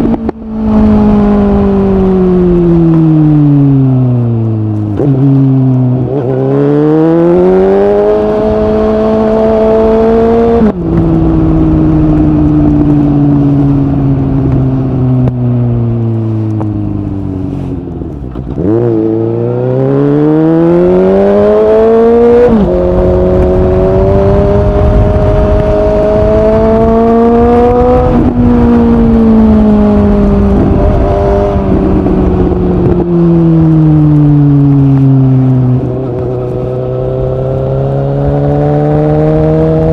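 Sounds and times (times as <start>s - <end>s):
motorcycle engine revving: 0.0s - 17.6s, 18.2s - 39.9s.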